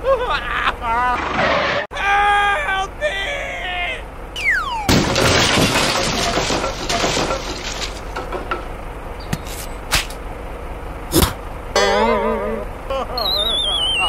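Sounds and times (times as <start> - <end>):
clattering rattling noise: 5.2 - 8.8.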